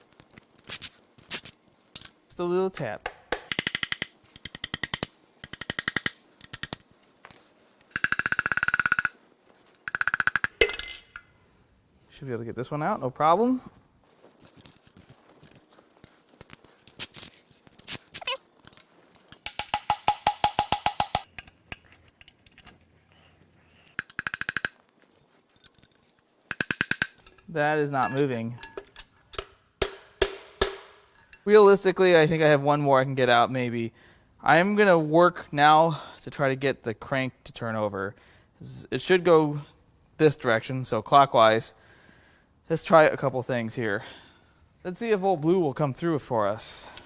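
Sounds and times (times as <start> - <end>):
impact wrench hammering: 3.1 - 6.8, 7.9 - 9.2, 9.9 - 10.8, 19.4 - 21.5, 24.0 - 24.8, 26.5 - 27.3, 29.4 - 31.2.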